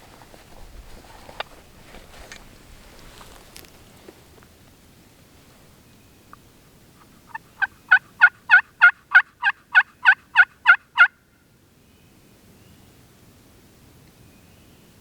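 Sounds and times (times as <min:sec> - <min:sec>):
turkey yelps: 0:07.0 - 0:11.2.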